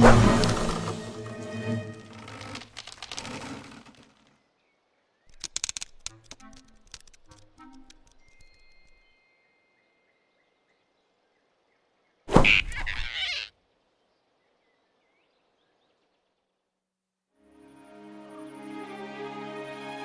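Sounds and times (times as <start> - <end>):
cartoon swoosh ending in thunk: 12.3 - 13.1.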